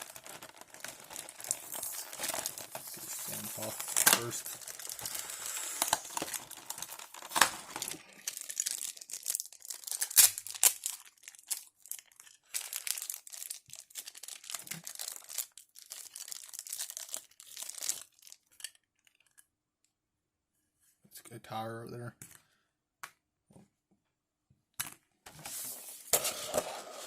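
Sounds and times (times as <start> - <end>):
plastic packaging crinkling: 0.0 - 19.4.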